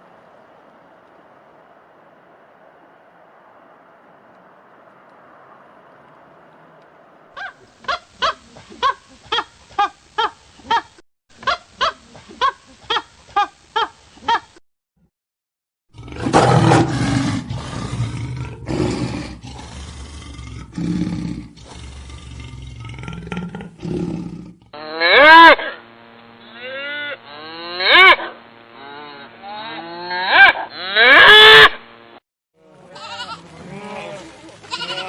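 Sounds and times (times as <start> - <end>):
animal roaring and growling: 15.9 - 25.6
animal honking calls: 24.8 - 31.8
loud rising and falling call: 24.8 - 31.9.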